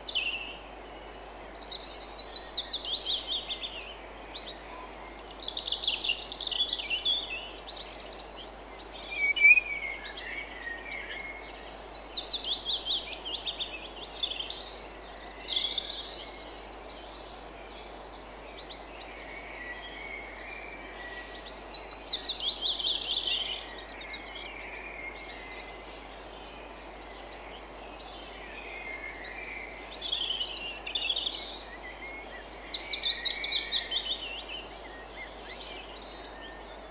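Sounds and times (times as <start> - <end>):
background hiss: 0.0 - 20.2
songbirds trilling: 8.9 - 10.0.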